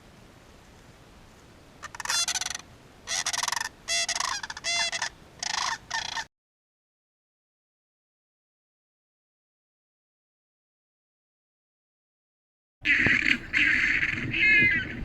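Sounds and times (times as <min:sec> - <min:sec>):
flamingo honking: 0:01.8 - 0:06.3, 0:12.8 - 0:15.0.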